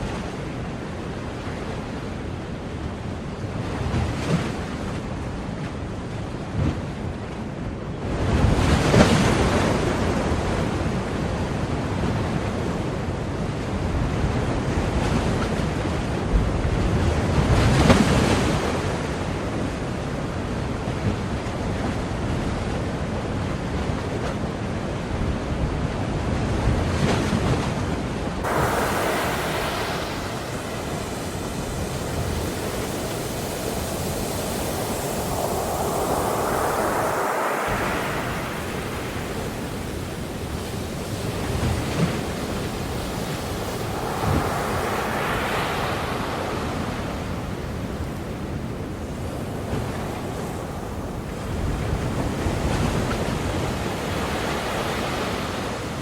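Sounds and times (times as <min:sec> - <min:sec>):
ocean waves breaking: 0:28.2 - 0:55.9
steady wash of water: 0:28.3 - 0:56.0
bright steady hiss: 0:28.4 - 0:54.8.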